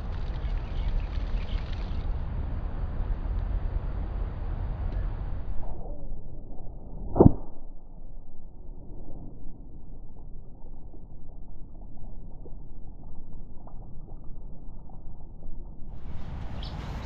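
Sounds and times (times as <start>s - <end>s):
muffled low rumbling: 0.0s - 17.0s
bird chirping: 16.4s - 17.0s.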